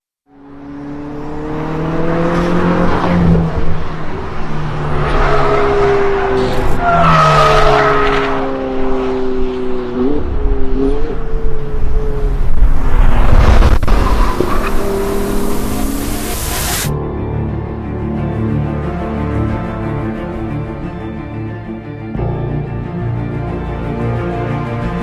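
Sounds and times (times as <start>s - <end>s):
sports car engine: 0.3s - 12.9s, 13.7s - 16.9s
rushing hiss surges: 14.2s - 16.9s.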